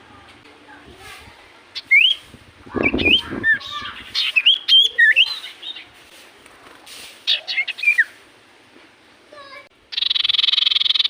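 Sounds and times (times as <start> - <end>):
bird whistled song: 1.8 - 5.9, 7.3 - 8.2, 9.9 - 11.0.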